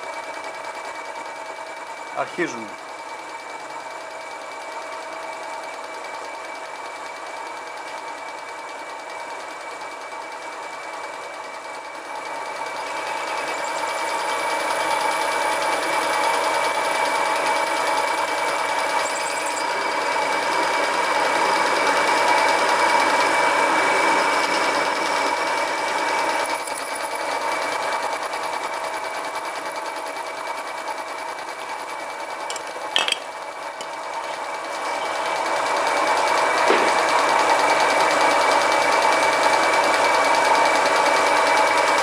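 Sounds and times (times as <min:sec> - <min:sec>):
lathe motor whining: 0:12.0 - 0:42.0.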